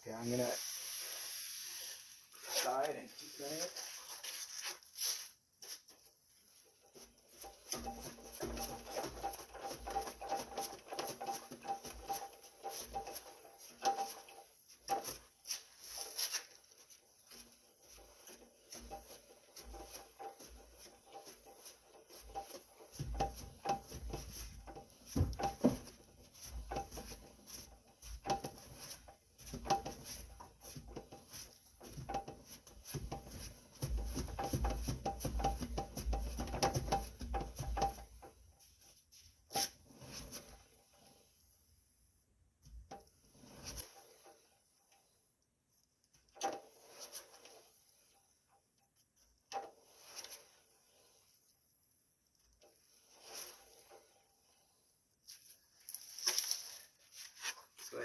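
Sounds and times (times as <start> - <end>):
rapid ticking and rubbing: 7.3 - 38.3.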